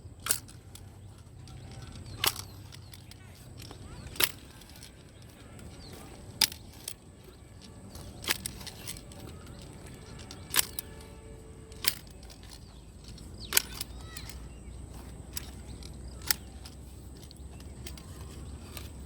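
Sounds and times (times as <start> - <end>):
faint outdoor background: 0.0 - 19.0
sharp short clicks: 7.6 - 19.0.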